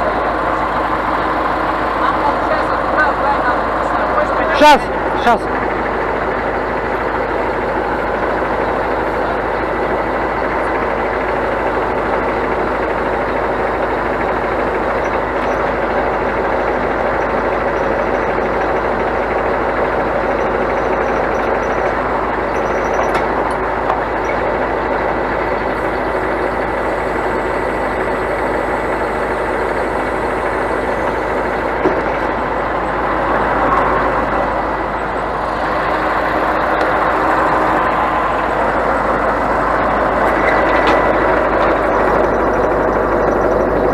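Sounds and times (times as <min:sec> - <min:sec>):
diesel truck engine droning: 0:00.0 - 0:43.9.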